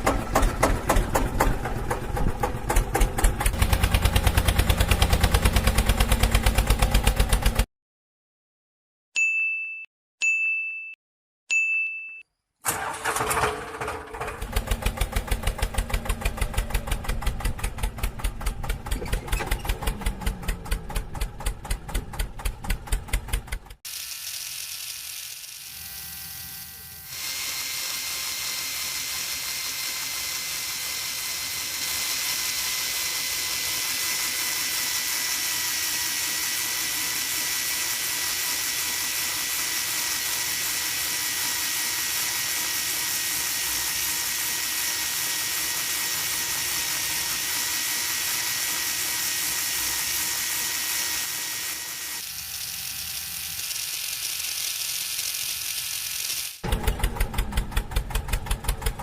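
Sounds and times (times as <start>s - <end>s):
electric motor whining: 23.9s - 56.9s.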